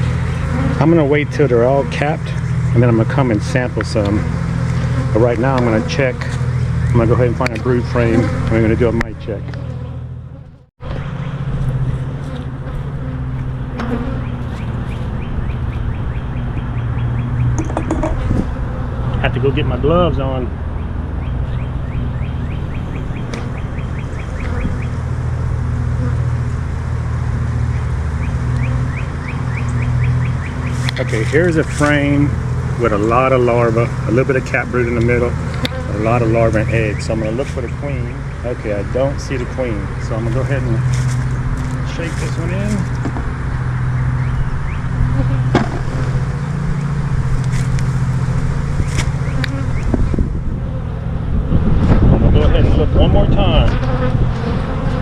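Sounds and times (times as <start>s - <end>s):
honeybees buzzing: 0.0s - 55.0s
steady low hum: 0.0s - 55.0s
knocks of hive frame: 7.4s - 8.6s, 12.0s - 18.9s, 45.2s - 46.4s, 53.7s - 55.0s
small bird chirping: 10.8s - 18.4s, 20.7s - 25.0s, 27.7s - 31.0s.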